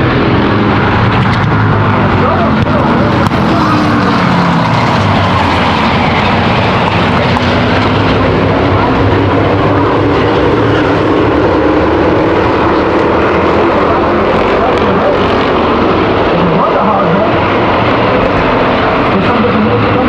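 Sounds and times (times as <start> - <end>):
race car engines at speed: 0.0 - 20.0.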